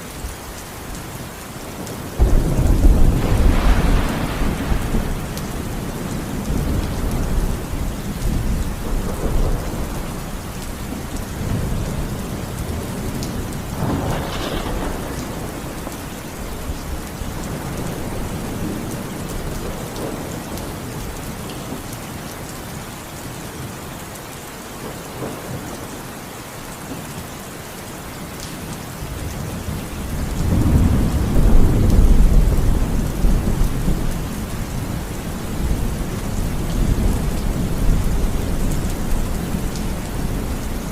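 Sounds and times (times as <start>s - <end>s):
rain falling: 0.0s - 40.9s
thunder rumbling: 1.8s - 21.2s, 29.4s - 40.9s.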